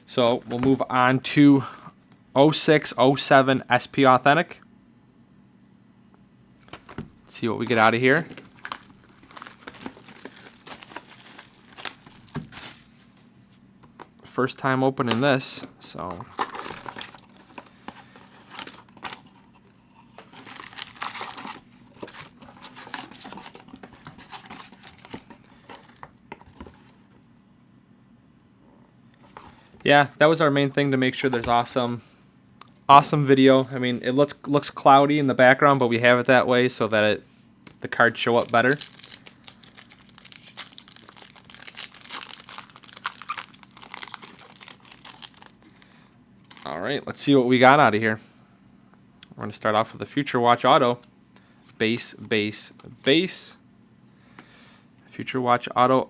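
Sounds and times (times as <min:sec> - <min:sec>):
wrapper crinkling and tearing: 0:07.8 - 0:13.0, 0:16.3 - 0:17.7, 0:20.1 - 0:26.0, 0:38.2 - 0:46.8.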